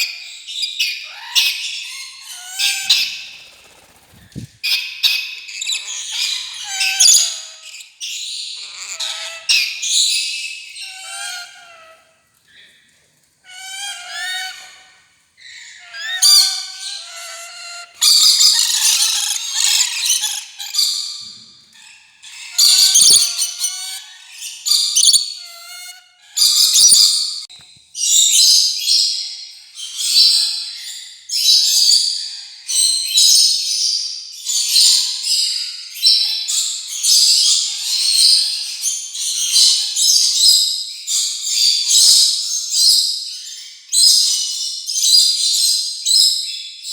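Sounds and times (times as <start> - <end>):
parrots whistling and screeching: 0.0 - 12.1, 13.4 - 28.5.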